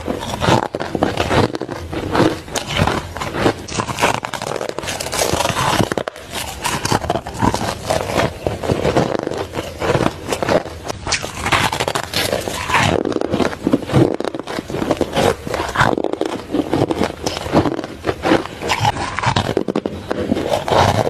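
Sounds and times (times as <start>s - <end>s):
ice being crunched: 0.0s - 21.0s.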